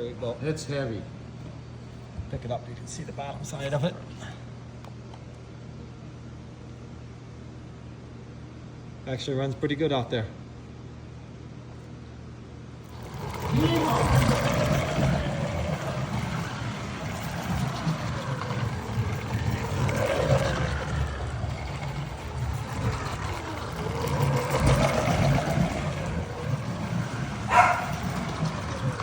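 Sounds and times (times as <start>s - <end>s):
slot car rumbling on track: 12.8s - 29.0s
electric motor whining: 12.9s - 29.0s.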